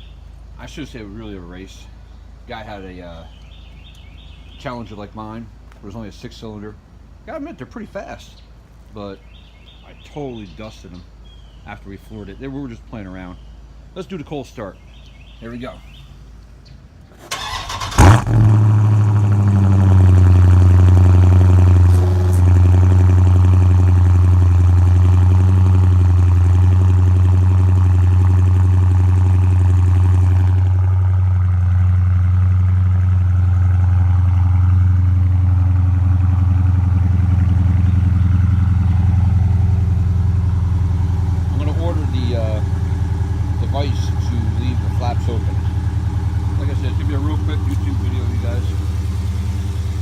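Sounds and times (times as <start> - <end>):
car engine starting and idling: 17.1 - 50.0.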